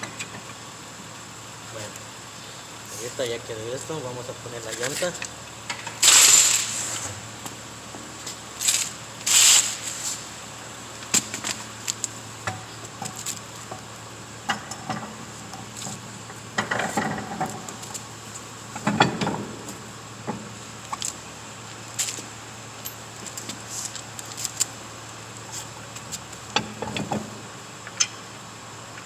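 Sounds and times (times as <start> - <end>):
metallic clicks of lug nuts: 26.5 - 28.2.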